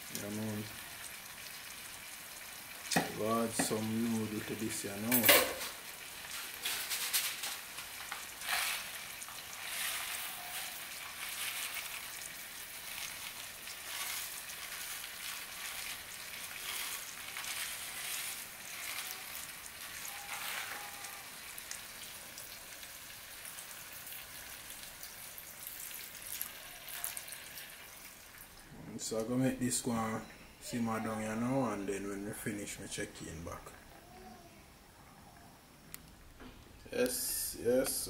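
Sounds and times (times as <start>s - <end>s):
fish frying in a pan: 0.0s - 28.6s.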